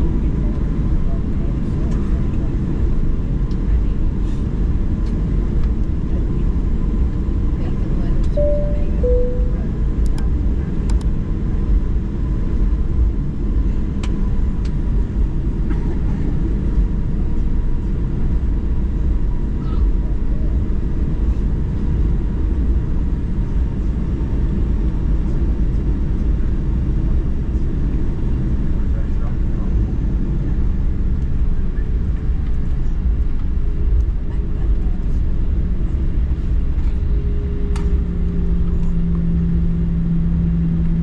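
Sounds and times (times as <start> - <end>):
airplane engines rumbling: 0.0 - 41.0
two-note cabin chime: 8.4 - 9.8.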